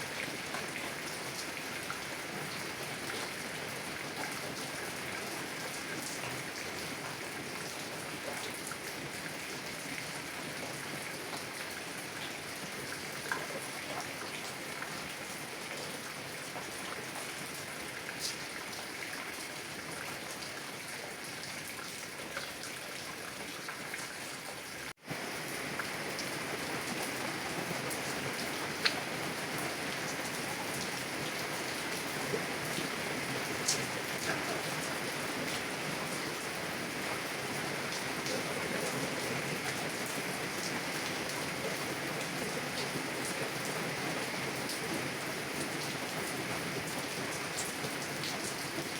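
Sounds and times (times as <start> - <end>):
heavy rain on a car window: 25.1 - 48.9.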